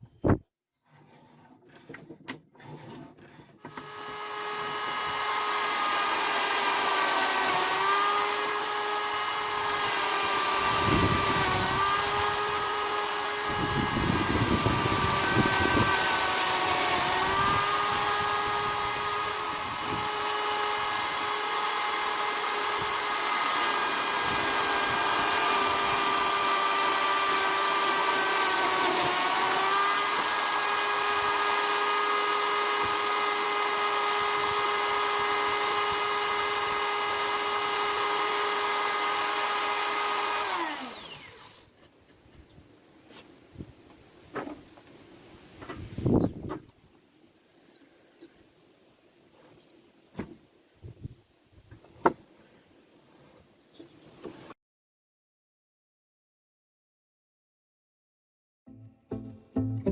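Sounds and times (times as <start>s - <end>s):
drill bit grinding: 2.6s - 41.7s
electric drill whining: 2.6s - 41.7s.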